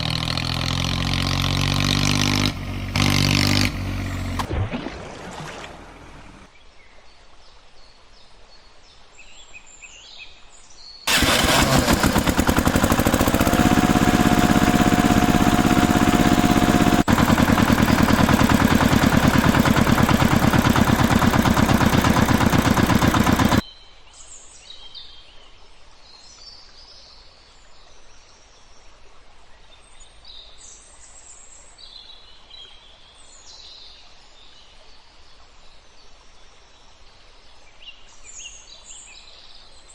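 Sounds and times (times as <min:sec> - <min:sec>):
loud engine running: 0:00.0 - 0:04.5, 0:05.8 - 0:06.5, 0:11.1 - 0:23.6.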